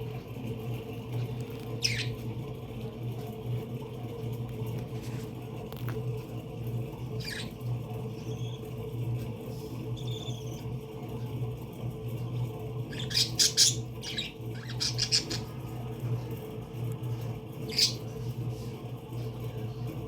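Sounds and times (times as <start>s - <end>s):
steady low hum: 0.0s - 20.0s
parakeets squawking: 1.7s - 2.2s, 7.1s - 8.7s, 10.0s - 10.7s, 12.9s - 15.7s, 17.6s - 18.2s.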